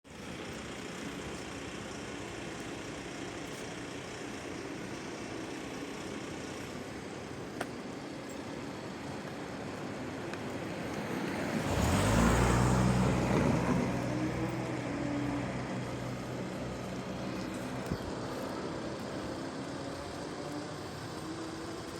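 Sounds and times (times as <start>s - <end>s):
steady traffic noise: 0.1s - 21.9s
motor vehicle passing close: 11.4s - 18.4s.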